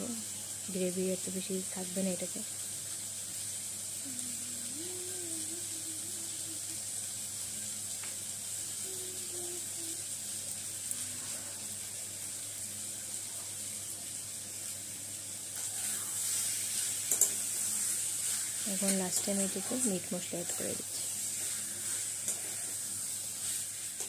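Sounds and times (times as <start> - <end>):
chicken sizzling in a pan: 0.0 - 24.0
spatula stirring: 20.8 - 24.0.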